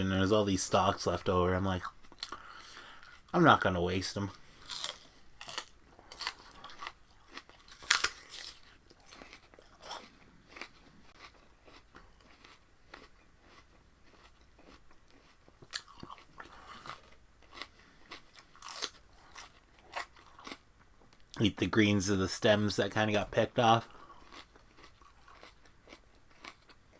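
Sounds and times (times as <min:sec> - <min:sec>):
spinach stalks being chewed: 0:04.6 - 0:20.6, 0:23.9 - 0:26.8.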